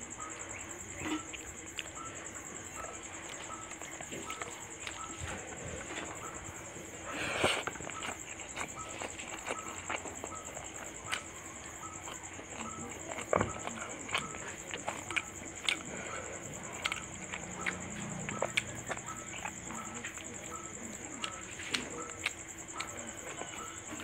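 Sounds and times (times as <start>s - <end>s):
wet chewing and lip smacks: 0.2s - 24.0s.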